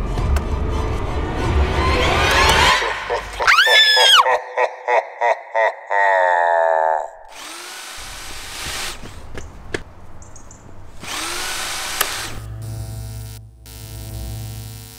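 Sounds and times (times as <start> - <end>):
power tool whirring: 7.3 - 9.5, 10.8 - 13.4.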